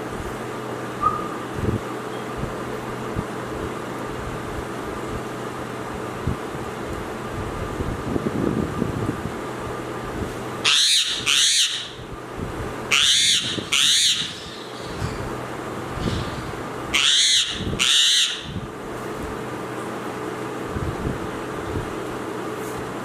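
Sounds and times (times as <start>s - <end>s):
parrot screeching: 10.6s - 12.0s, 12.9s - 15.0s, 16.0s - 18.6s.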